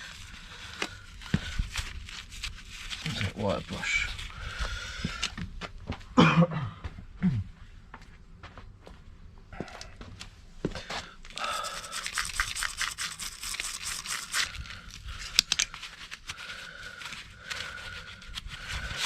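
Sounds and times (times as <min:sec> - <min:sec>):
wire brush scrubbing metal: 0:11.6 - 0:16.2.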